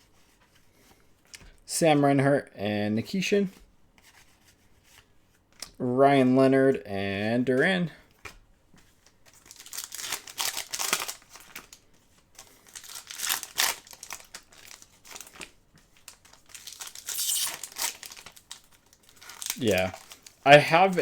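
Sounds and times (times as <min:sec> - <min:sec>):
card pack wrappers tearing: 0:09.4 - 0:11.8, 0:12.4 - 0:21.0.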